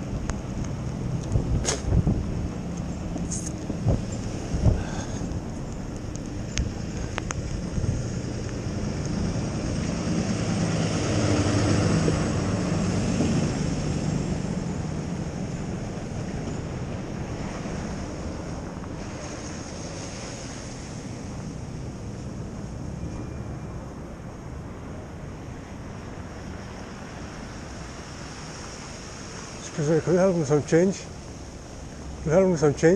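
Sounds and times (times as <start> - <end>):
wind buffeting microphone: 0.0 - 23.0
motor vehicle passing: 0.0 - 23.3.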